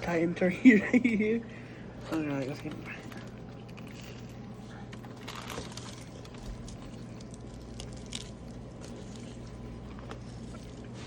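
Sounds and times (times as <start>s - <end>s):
steady low hum: 0.0s - 11.0s
small crackles and clicks: 2.1s - 11.0s
person chewing sandwich: 2.9s - 11.0s.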